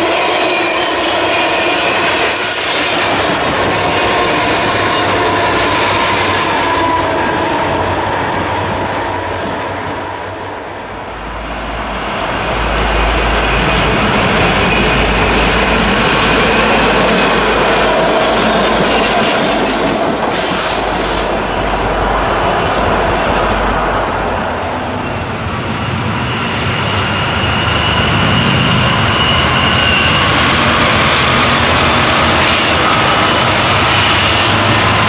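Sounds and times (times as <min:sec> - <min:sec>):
diesel locomotives droning: 0:00.0 - 0:35.0
freight train rumbling past: 0:00.0 - 0:35.0
wheels clicking over rail joints: 0:22.0 - 0:25.3.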